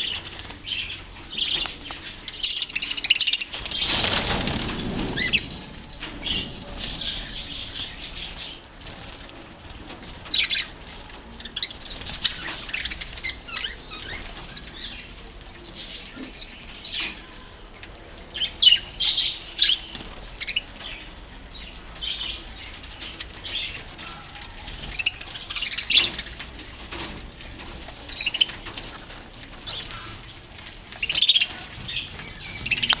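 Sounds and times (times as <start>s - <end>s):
budgerigars chirping and chattering: 0.0s - 33.0s.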